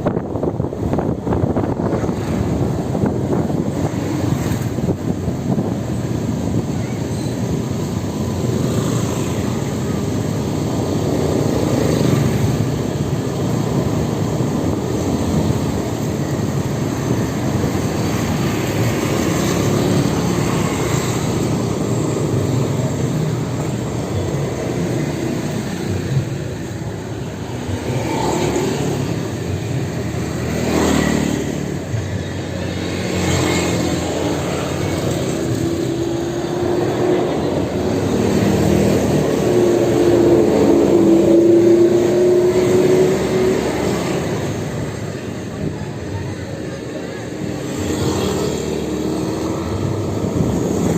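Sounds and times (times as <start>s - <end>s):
road and wind noise: 0.0s - 50.9s.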